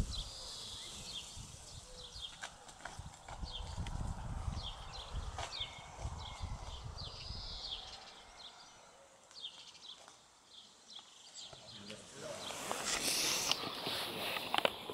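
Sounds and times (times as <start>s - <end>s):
small birds chirping: 0.0s - 14.9s
rustling: 11.8s - 14.9s.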